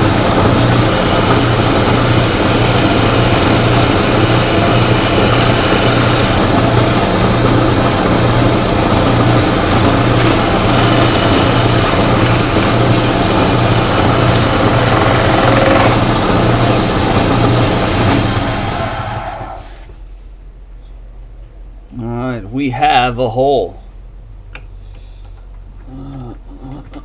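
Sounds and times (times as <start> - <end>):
power tool cutting under load: 0.0 - 18.9.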